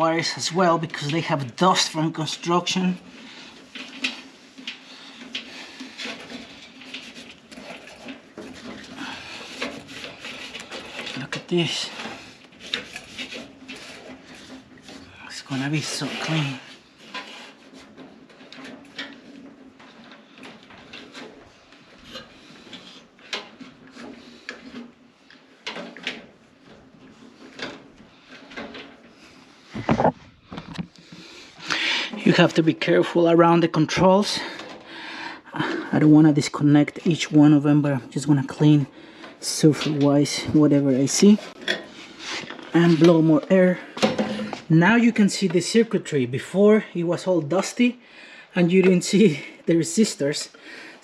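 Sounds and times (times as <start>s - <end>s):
rustling and rubbing strokes: 2.3s - 32.5s, 36.8s - 44.8s.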